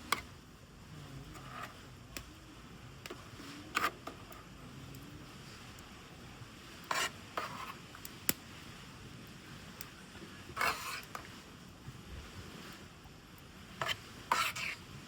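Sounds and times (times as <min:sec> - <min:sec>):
utensil scraping a pan: 0:01.2 - 0:01.9, 0:03.1 - 0:04.4, 0:06.7 - 0:07.9, 0:10.4 - 0:11.5, 0:13.7 - 0:15.0.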